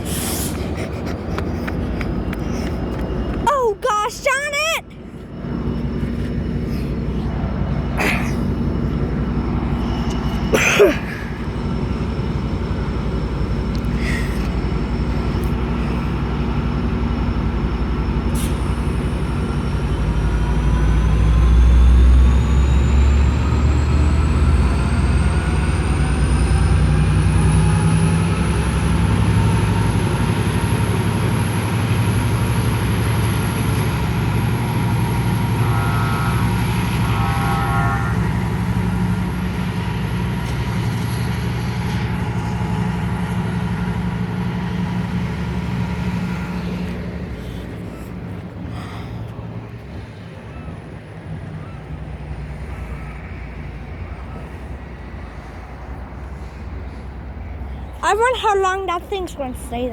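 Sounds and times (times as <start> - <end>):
train engine rumble: 0.0 - 59.9
rising whine: 4.9 - 48.6.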